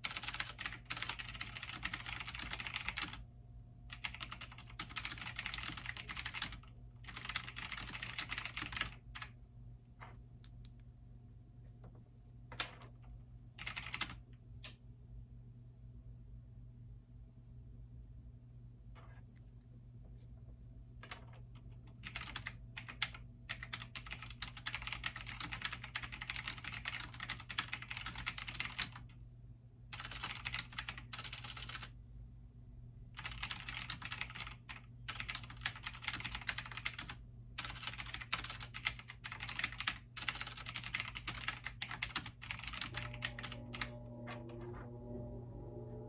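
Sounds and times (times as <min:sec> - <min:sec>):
computer keyboard typing: 0:00.0 - 0:03.2, 0:03.9 - 0:09.3, 0:13.6 - 0:14.3, 0:21.8 - 0:29.0, 0:30.0 - 0:31.9, 0:33.2 - 0:44.9
steady low hum: 0:41.3 - 0:46.0.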